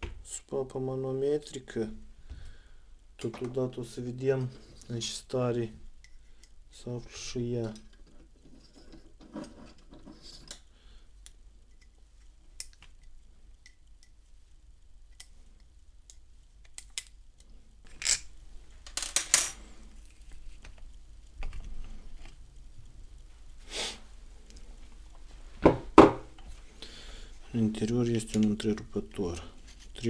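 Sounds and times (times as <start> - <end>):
metal tools clinking: 19.0 - 19.6.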